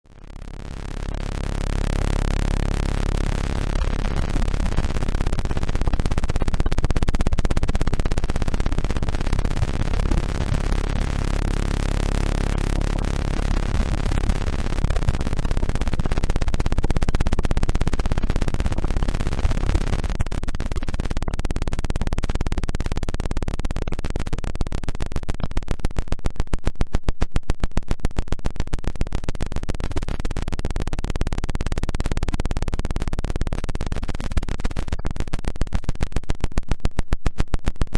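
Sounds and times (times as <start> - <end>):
synthesized tones and hiss: 0.1 - 25.5.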